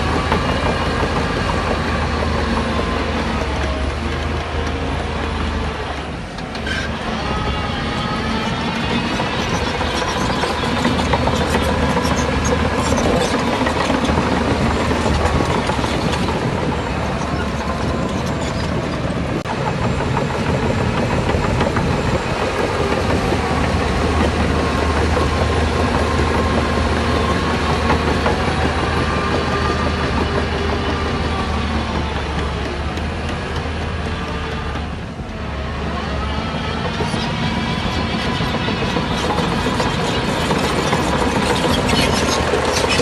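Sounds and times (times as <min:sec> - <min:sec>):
heavy diesel engines droning: 0:00.0 - 0:43.0.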